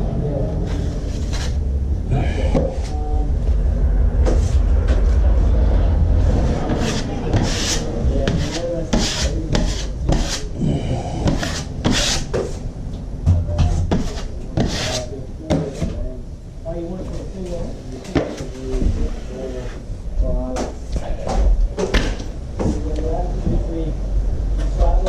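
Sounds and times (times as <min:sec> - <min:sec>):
low rumble: 0:00.0 - 0:11.9
rasping strokes on hard surface: 0:06.6 - 0:12.5, 0:13.9 - 0:15.1.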